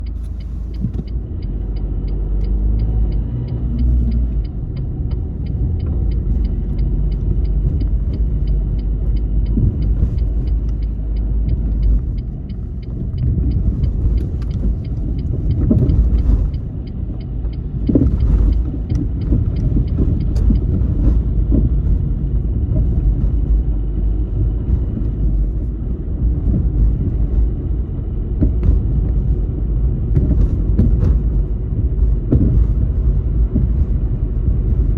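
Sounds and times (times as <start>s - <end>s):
light regular ticking: 0.0s - 27.8s
car engine and tyre rumble: 0.0s - 34.9s.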